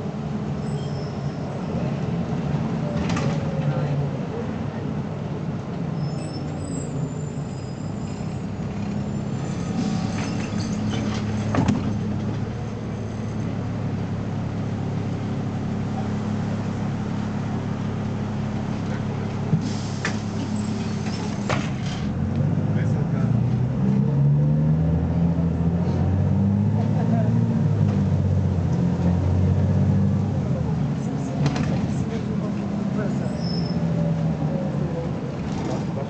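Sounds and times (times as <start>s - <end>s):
bus diesel engine running: 0.0s - 36.0s.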